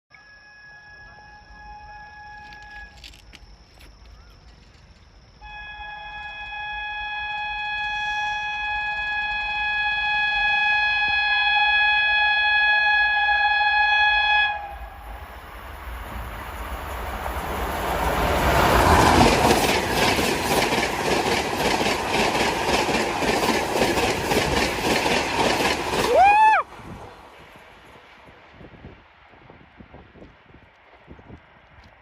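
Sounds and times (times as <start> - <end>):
train horn: 0.1 - 3.0, 5.4 - 16.3
train rushing past: 11.7 - 31.0
wheels clacking over rail joints: 15.9 - 28.2.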